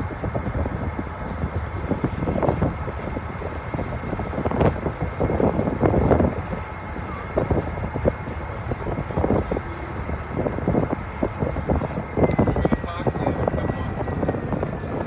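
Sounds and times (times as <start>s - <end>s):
low rumble of ferry: 0.0s - 15.0s
wind buffeting microphone: 0.0s - 15.0s.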